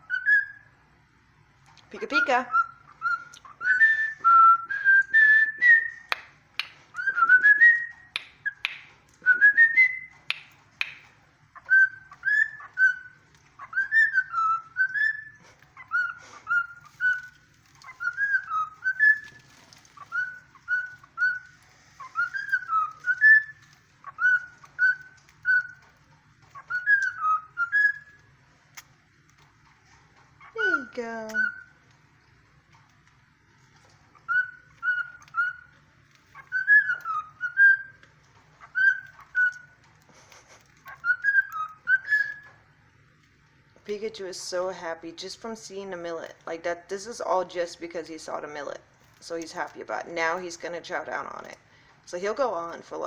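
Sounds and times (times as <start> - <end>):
cockatiel whistling: 0.0 - 0.8, 2.0 - 28.9, 30.4 - 31.8, 33.8 - 42.8.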